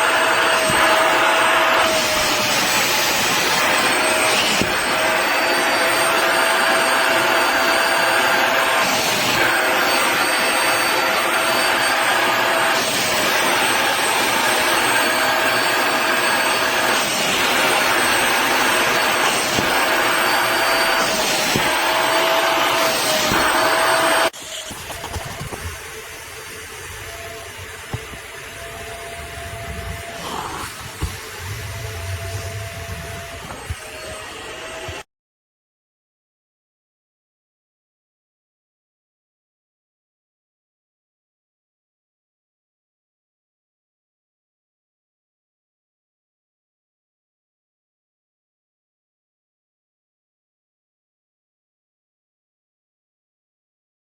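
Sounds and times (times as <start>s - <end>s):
wet vacuum motor whine: 0.0s - 35.0s.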